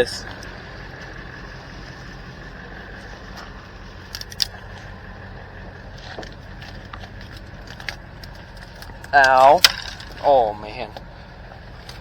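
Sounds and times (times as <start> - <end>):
truck engine idling: 0.0 - 12.0
crackles and snaps: 4.0 - 4.9, 6.1 - 10.3.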